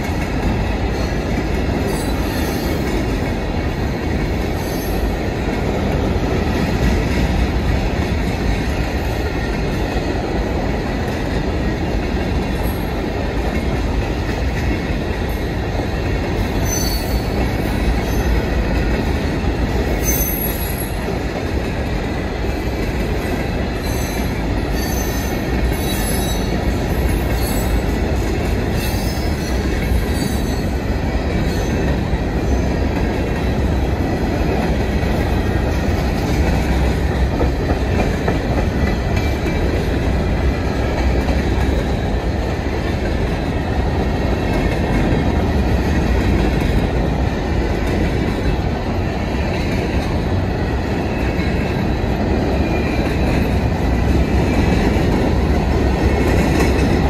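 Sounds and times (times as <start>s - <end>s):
steel wheels rolling on rail: 0.0s - 57.0s
high-pitched wheel squeals: 16.6s - 17.3s.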